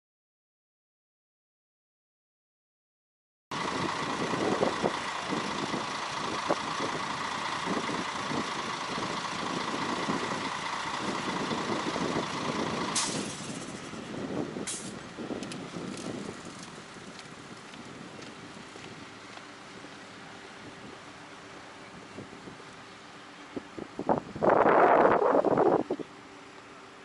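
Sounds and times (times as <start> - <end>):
heavy machinery engine: 3.5 - 27.0
street noise: 3.5 - 27.0.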